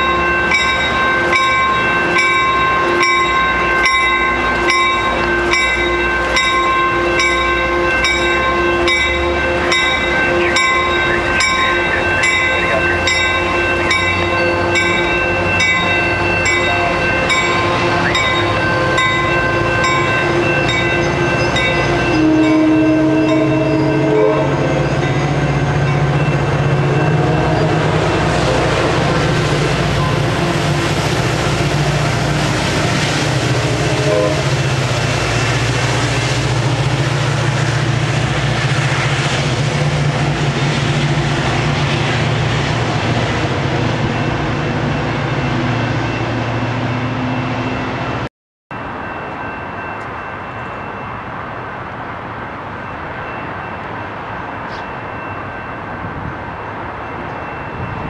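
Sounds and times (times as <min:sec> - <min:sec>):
train horn: 0:00.0 - 0:29.1, 0:31.7 - 0:35.7
grade-crossing bell ringing: 0:00.0 - 0:42.2, 0:42.9 - 0:58.0
commuter train running past: 0:00.0 - 0:58.0
train rumble and rail noise: 0:00.0 - 0:58.0.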